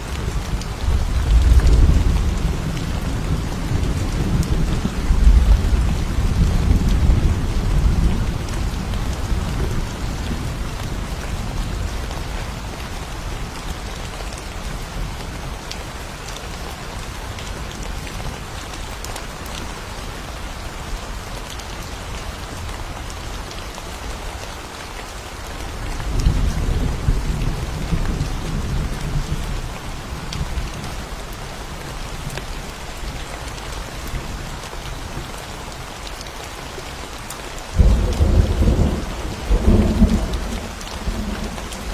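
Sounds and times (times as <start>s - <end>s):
steady rain falling: 0.0s - 41.9s
low rolling thunder: 0.2s - 12.0s, 25.8s - 31.0s, 37.8s - 41.9s.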